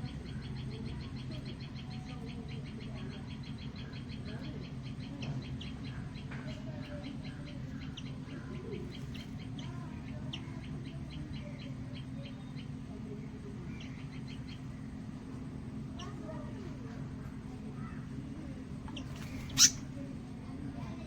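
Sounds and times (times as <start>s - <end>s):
small bird chipping: 0.0s - 21.0s
steady low hum: 0.0s - 21.0s
lower bird calls: 18.8s - 20.0s.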